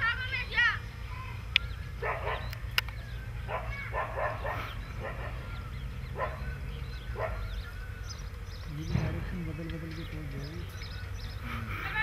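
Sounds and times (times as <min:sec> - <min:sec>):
dog barking: 0:02.0 - 0:02.6, 0:03.5 - 0:05.5, 0:06.2 - 0:06.5, 0:07.2 - 0:07.5
sharp clicks: 0:02.5 - 0:03.0.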